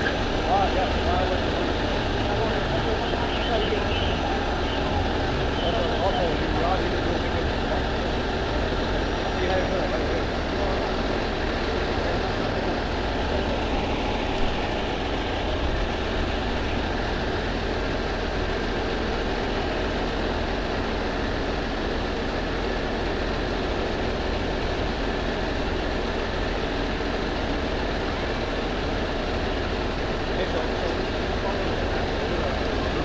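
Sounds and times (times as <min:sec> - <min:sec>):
vehicle rumble: 0:00.0 - 0:33.0.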